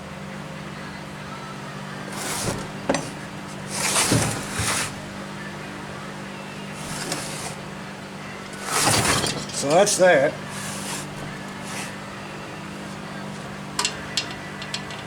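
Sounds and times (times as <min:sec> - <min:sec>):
engine cranked by hand rasping: 0:02.1 - 0:05.2, 0:06.7 - 0:07.6, 0:08.5 - 0:12.0.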